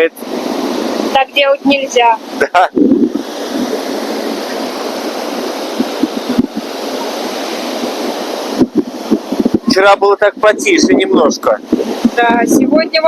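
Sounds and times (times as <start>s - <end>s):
surf breaking on beach: 0.0s - 13.0s
wind buffeting microphone: 0.0s - 13.0s.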